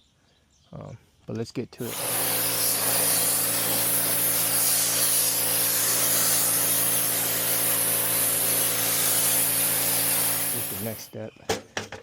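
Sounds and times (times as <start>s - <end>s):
pressure washer machine hum: 1.8s - 11.1s
pressure washer spray hiss: 1.8s - 11.1s.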